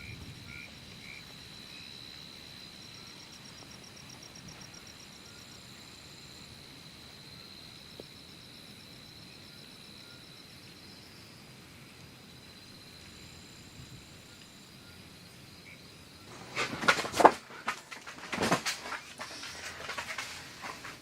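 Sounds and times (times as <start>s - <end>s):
insect high-pitched trill: 0.0s - 16.6s
insect quick chirping pulses: 0.0s - 21.0s.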